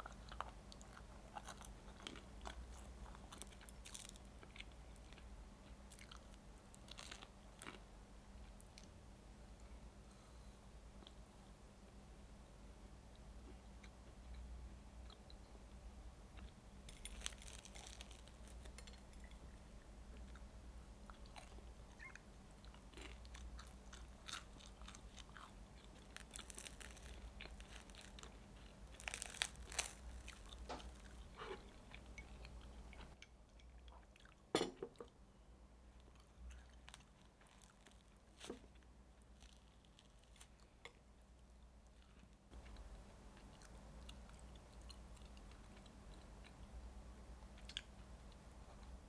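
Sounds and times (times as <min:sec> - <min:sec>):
crunchy chewing: 0:00.0 - 0:05.3, 0:16.4 - 0:19.4, 0:21.1 - 0:33.2, 0:36.1 - 0:41.0.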